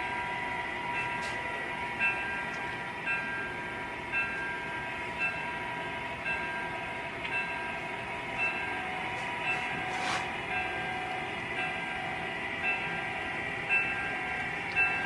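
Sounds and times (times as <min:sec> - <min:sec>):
diesel locomotive whine: 0:00.0 - 0:15.0.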